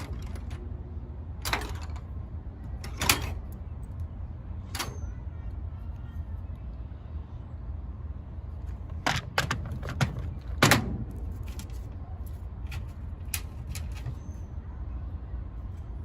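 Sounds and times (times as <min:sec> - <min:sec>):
tools and metal parts clicking: 0:00.0 - 0:00.7, 0:01.4 - 0:04.0, 0:04.6 - 0:05.2, 0:09.0 - 0:14.5
steady low rumble: 0:00.0 - 0:16.0.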